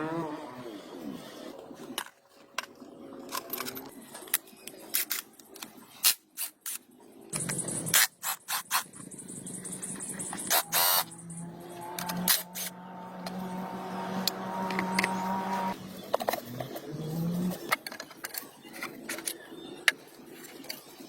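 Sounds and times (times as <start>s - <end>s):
hand tool scraping metal: 10.2s - 12.8s.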